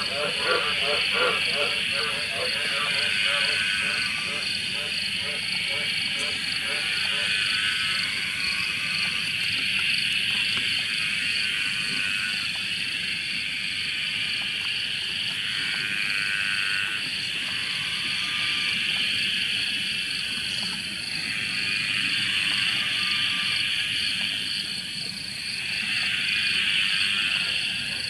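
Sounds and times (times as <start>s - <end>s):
low frog call: 0.0s - 9.2s, 10.8s - 12.5s, 15.4s - 19.0s, 25.5s - 28.0s
frogs calling in chorus: 0.0s - 28.0s.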